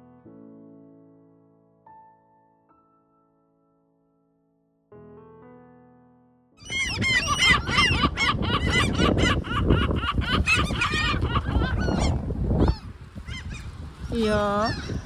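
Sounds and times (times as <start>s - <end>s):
gulls calling: 6.6s - 15.0s
strong wind on microphone: 6.7s - 15.0s.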